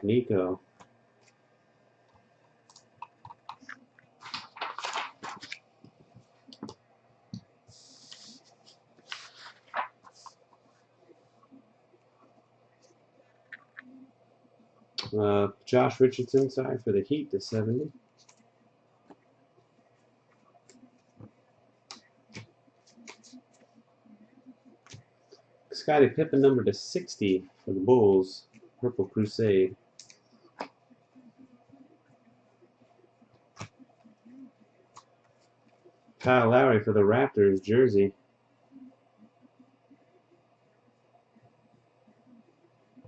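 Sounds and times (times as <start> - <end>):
trading cards clicking and rustling: 2.7 - 6.8.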